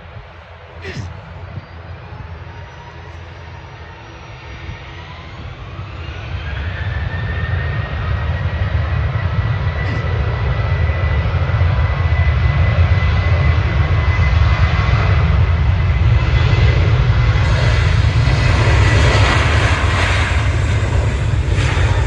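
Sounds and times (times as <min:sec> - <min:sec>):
deep rumble: 0:00.0 - 0:22.0
jet engines roaring: 0:00.0 - 0:22.0
engine whine rising in pitch: 0:01.4 - 0:15.9.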